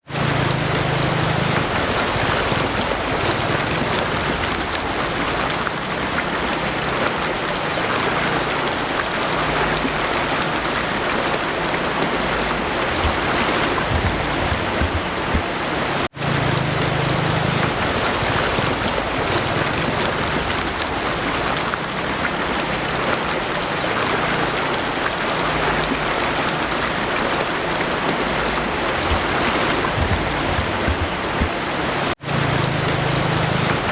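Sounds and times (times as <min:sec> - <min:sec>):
rushing stream with waterfalls: 0:00.0 - 0:33.9
steady rain falling: 0:00.0 - 0:33.9.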